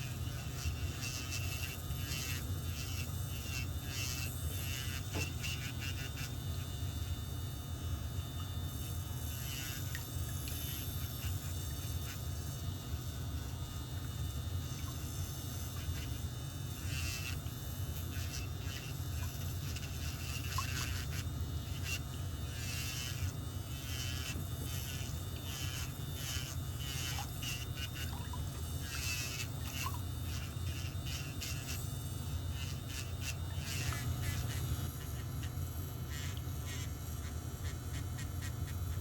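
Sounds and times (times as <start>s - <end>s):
scraping and filing toenail: 0.0s - 6.4s, 15.7s - 31.8s, 32.5s - 39.0s
steady low hum: 0.0s - 39.0s.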